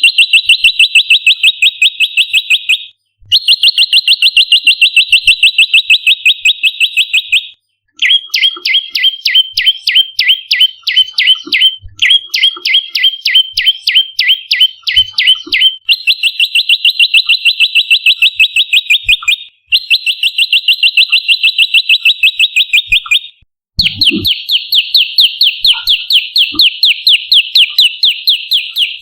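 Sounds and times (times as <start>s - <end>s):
bird trilling: 0.0s - 17.5s, 22.4s - 29.0s
bird chirping: 0.0s - 29.0s.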